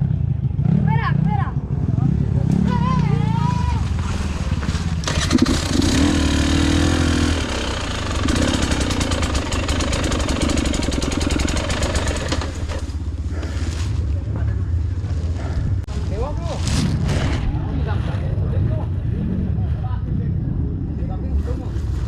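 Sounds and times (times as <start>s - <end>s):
dirt bike engine revving: 2.0s - 13.7s.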